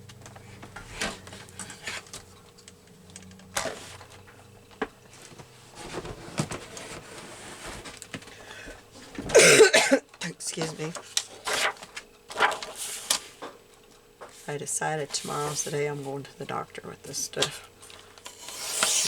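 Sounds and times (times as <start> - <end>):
person coughing: 9.3 - 10.1
paper rustling on trimmer: 10.6 - 13.4, 17.4 - 19.0.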